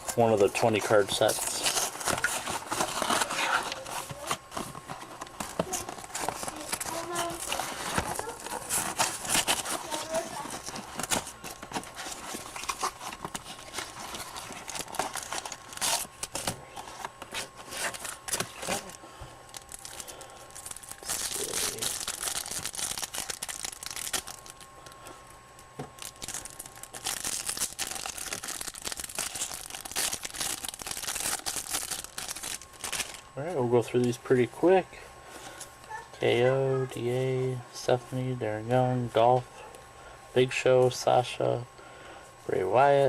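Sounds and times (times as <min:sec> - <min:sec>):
plastic wrapping crinkling and tearing: 0:00.0 - 0:25.0, 0:26.0 - 0:33.2.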